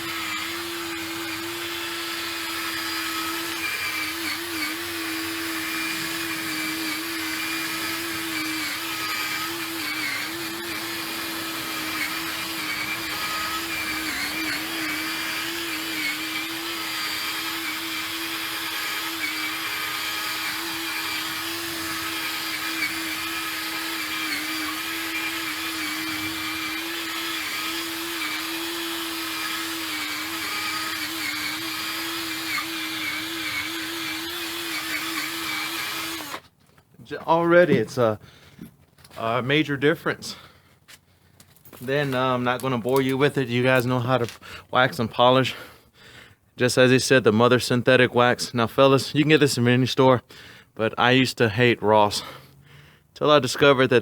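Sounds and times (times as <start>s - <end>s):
cordless drill motor whine: 0.0s - 36.5s.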